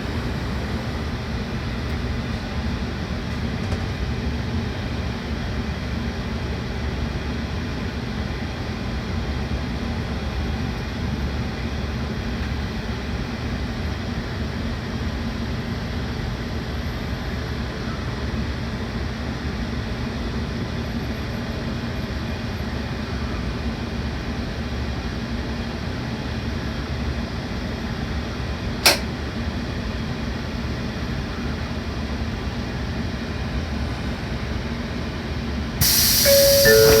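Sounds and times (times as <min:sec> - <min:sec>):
train equipment low hum: 0:00.0 - 0:17.4, 0:27.9 - 0:31.4, 0:32.5 - 0:37.0
sharp click: 0:28.8 - 0:29.1
loud hiss: 0:35.8 - 0:37.0
two-note chime: 0:36.2 - 0:37.0.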